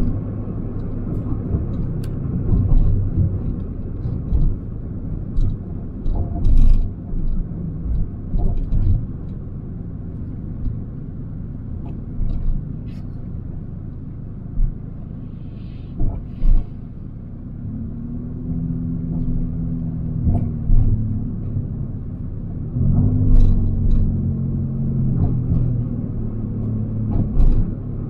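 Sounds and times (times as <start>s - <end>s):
car engine hum: 0.0s - 28.0s
road rumble: 0.0s - 28.0s.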